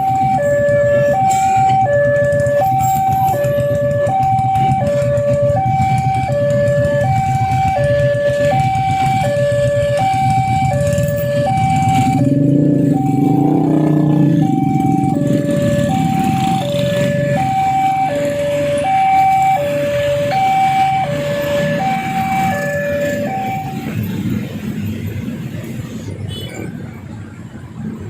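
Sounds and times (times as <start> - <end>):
level crossing alarm two tones: 7.0 - 23.9.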